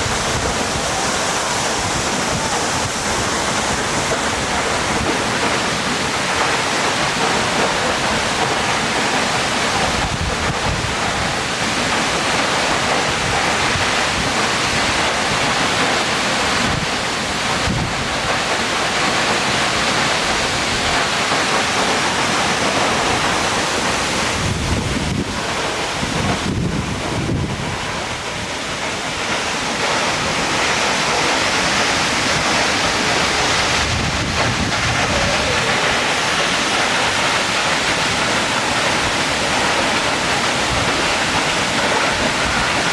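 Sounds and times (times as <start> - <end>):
waterfall roaring: 0.0 - 42.9
wind buffeting microphone: 22.6 - 42.9.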